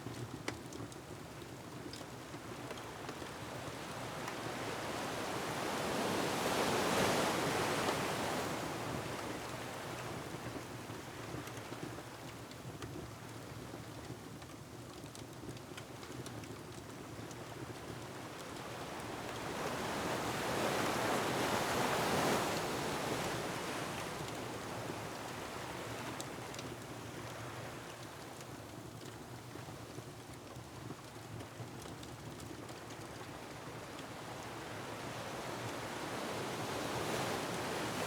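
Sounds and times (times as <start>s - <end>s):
ocean waves: 19.0s - 24.2s, 35.0s - 38.0s.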